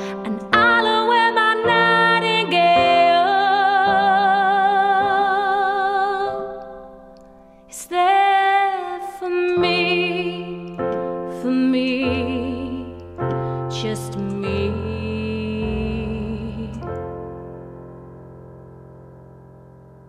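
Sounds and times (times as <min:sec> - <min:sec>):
woman singing with vibrato: 0:00.1 - 0:06.5, 0:07.7 - 0:10.6.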